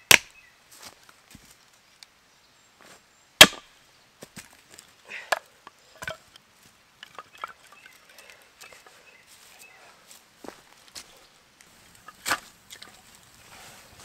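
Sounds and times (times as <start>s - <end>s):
wood splitting crack: 0.1s - 0.3s, 3.4s - 3.6s
wood pieces knocking: 7.0s - 8.0s.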